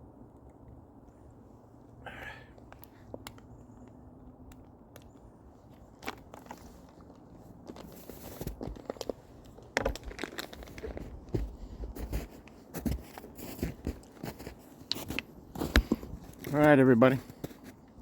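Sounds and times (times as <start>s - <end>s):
footsteps crunching on snow: 7.7s - 9.2s, 9.8s - 17.8s.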